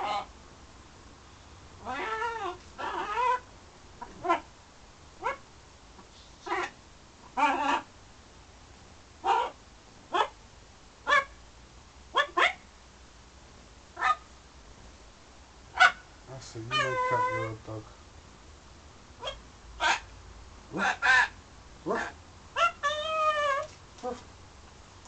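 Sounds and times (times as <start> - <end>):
macaw squawking: 16.7 - 17.6, 20.7 - 23.7.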